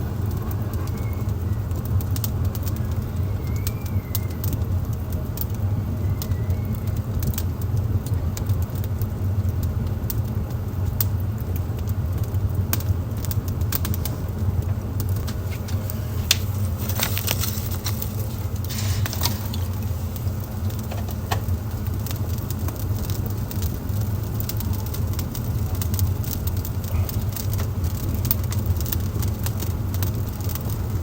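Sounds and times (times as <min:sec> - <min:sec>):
low fire rumble: 0:00.0 - 0:31.0
wood fire crackling and popping: 0:00.0 - 0:31.0.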